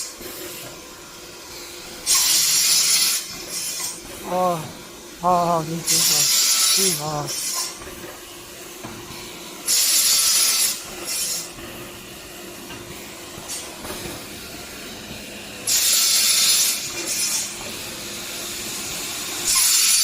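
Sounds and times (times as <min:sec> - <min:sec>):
saw cutting through bamboo: 0:05.9 - 0:07.7, 0:09.7 - 0:11.5, 0:15.7 - 0:17.6.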